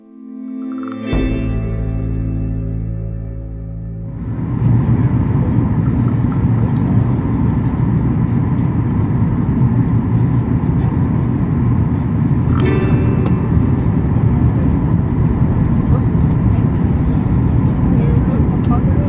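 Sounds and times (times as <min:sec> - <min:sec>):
soft ambient music: 0:00.0 - 0:06.9, 0:12.3 - 0:19.0
airliner cabin rumble: 0:01.1 - 0:19.0.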